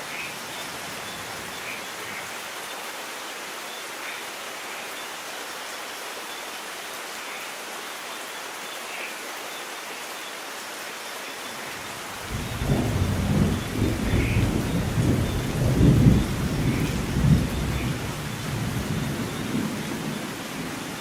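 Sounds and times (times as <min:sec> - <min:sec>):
steady rain: 0:00.0 - 0:21.0
thunder rolling: 0:12.3 - 0:19.8.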